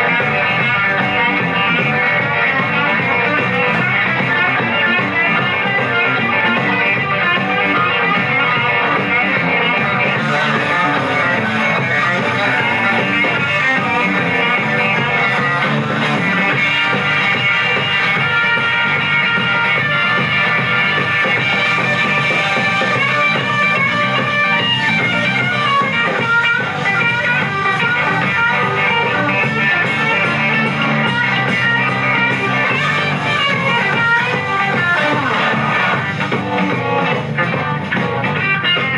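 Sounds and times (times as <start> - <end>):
electric guitar: 0.0 - 38.9
rock band playing: 0.0 - 38.9.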